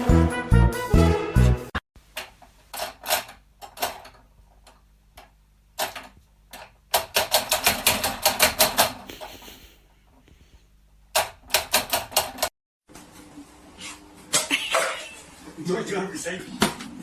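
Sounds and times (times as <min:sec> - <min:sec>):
music: 0:00.0 - 0:01.8.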